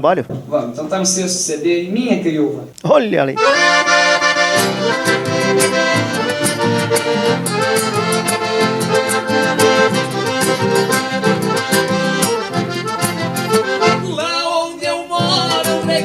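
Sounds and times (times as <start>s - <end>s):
accordion melody over steady beat: 3.4s - 16.0s.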